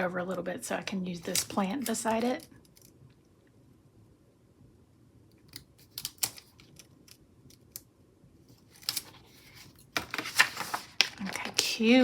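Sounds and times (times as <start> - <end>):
paper rustle: 8.5 - 12.0.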